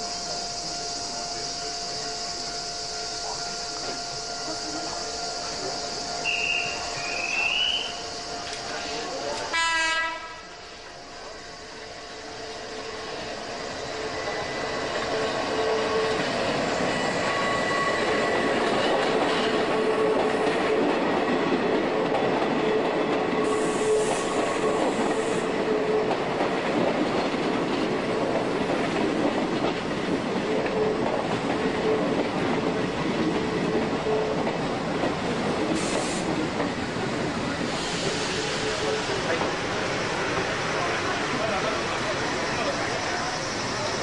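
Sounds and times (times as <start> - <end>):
electric train passing: 0.0 - 44.0.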